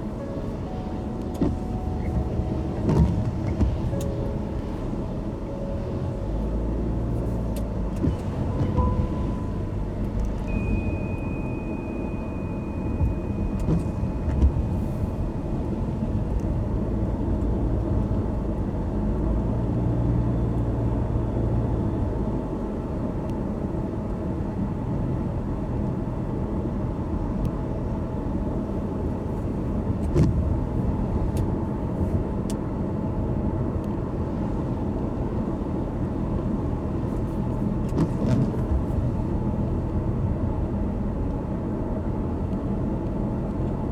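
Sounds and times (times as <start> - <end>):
car engine and tyres rumbling: 0.0 - 43.9
thin high steady tone: 10.5 - 14.3.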